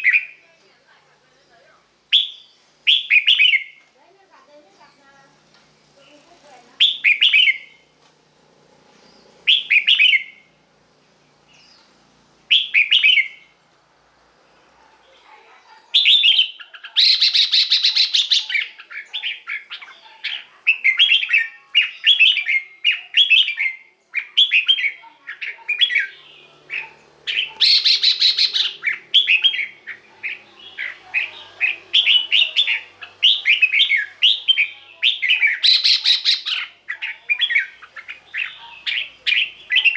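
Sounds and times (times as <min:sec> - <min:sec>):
bird singing whistled phrases: 0:02.1 - 0:03.8, 0:06.8 - 0:07.8, 0:09.4 - 0:10.5, 0:12.5 - 0:13.5, 0:16.0 - 0:39.9
harsh buzzy bird call: 0:09.1 - 0:10.5, 0:16.0 - 0:39.9.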